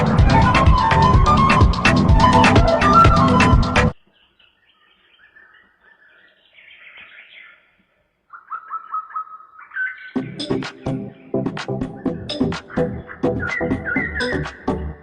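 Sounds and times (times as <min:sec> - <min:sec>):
background music: 0:00.0 - 0:04.0, 0:10.2 - 0:15.0
bird chirping: 0:00.0 - 0:15.0.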